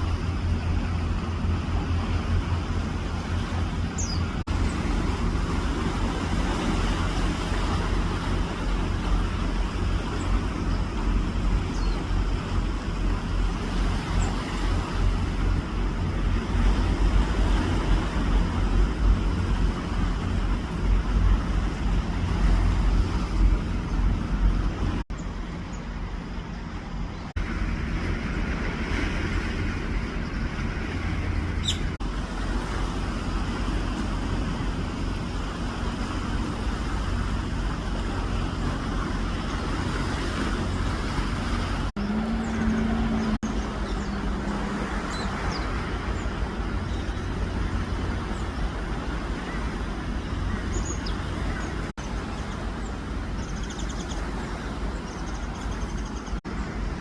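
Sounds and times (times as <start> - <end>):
road traffic rumble: 0.0 - 57.0
faint bird chirps: 3.9 - 4.3.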